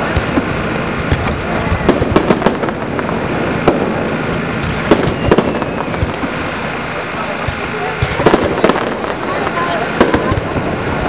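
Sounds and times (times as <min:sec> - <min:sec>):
firework shells bursting: 0:00.0 - 0:11.0
fireworks crackling: 0:00.0 - 0:11.0.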